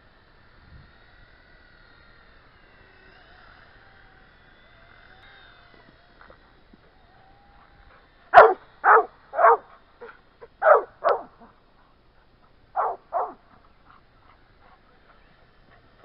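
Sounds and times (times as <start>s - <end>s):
dog barking: 8.4s - 9.7s, 10.6s - 11.4s, 12.8s - 13.4s.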